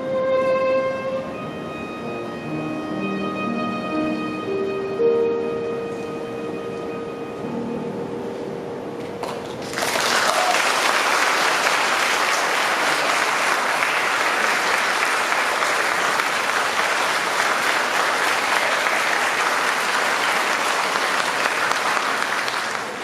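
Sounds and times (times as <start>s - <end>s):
audience applauding: 9.2s - 23.0s.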